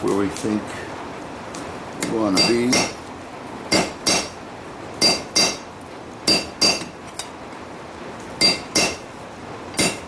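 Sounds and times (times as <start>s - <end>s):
hammer ringing on steel anvil: 2.4s - 3.0s, 3.7s - 4.3s, 5.0s - 5.7s, 6.3s - 7.0s, 8.4s - 9.0s, 9.8s - 10.0s.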